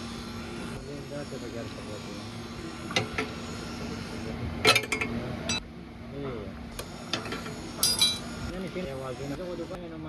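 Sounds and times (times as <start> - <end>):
metal tools clinking: 7.2 - 8.3.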